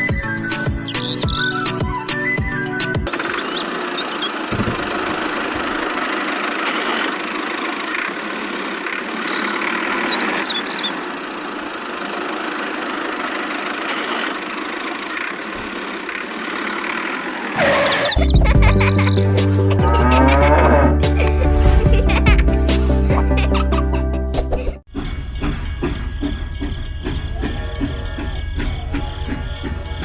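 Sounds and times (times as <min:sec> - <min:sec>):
motor running steadily: 0:03.1 - 0:17.6.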